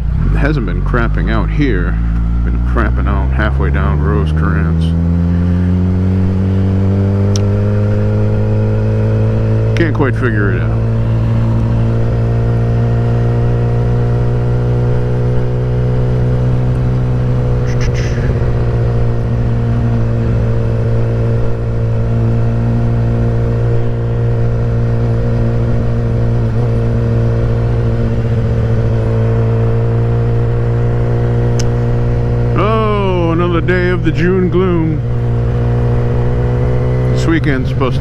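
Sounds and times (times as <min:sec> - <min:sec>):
motorcycle engine running steadily: 0:00.0 - 0:38.0.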